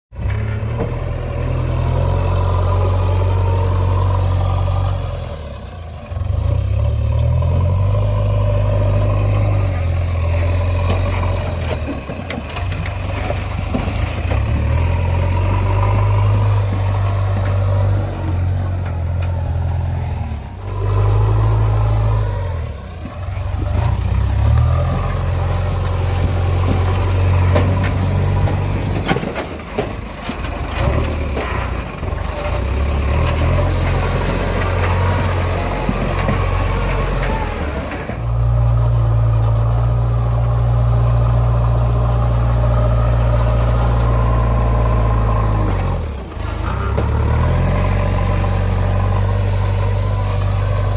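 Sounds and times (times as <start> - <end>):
diesel engine revving: 0.1 - 50.9
machinery clatter: 8.9 - 19.7, 23.0 - 39.8.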